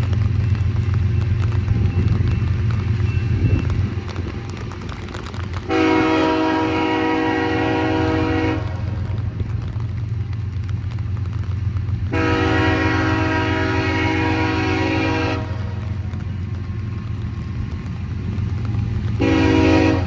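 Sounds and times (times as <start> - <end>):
train rumble: 0.0 - 20.0
locomotive air horn blasts: 5.7 - 9.1, 12.1 - 15.9, 19.2 - 20.0.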